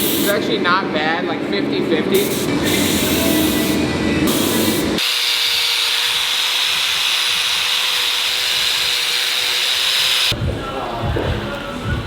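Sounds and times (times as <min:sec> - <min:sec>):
compressed air hissing: 0:00.0 - 0:00.4, 0:02.2 - 0:05.0.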